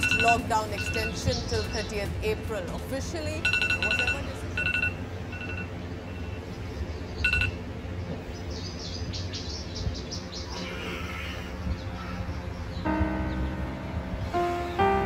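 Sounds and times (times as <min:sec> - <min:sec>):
birds chirping: 0:00.0 - 0:15.0
low hum: 0:00.0 - 0:15.0
short electronic beeps: 0:03.4 - 0:06.4, 0:07.2 - 0:07.6.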